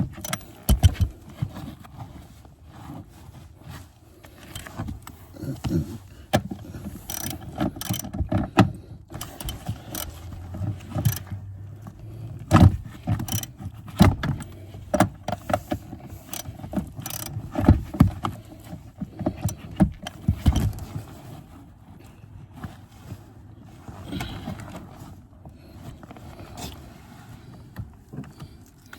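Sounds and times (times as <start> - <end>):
ratchet wrench clicking: 7.0 - 8.1, 9.2 - 10.2, 11.0 - 11.3, 13.2 - 13.5, 16.2 - 17.4.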